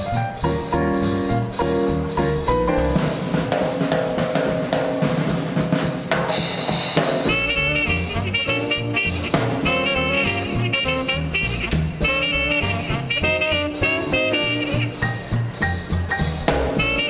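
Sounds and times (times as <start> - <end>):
snare and bass drum: 0.0 - 17.0
swing band playing: 0.0 - 17.0
sax and trumpet tune: 7.3 - 17.0.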